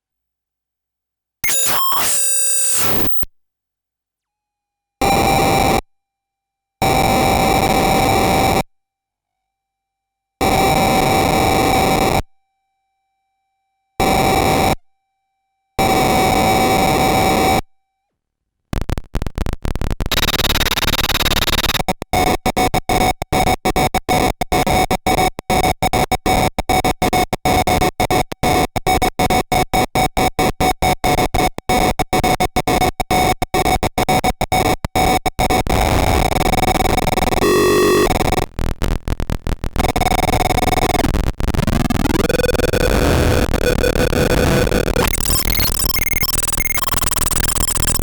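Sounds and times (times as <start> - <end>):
harsh square-wave noise buzz: 35.6 - 48.0.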